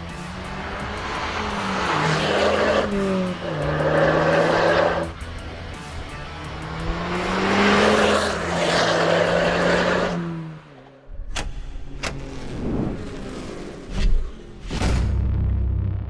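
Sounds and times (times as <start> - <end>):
car exhaust accelerating: 0.0 - 10.8.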